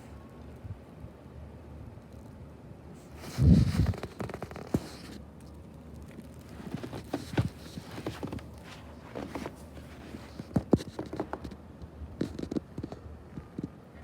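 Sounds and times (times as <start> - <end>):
knocks and scuffs: 6.4 - 11.5.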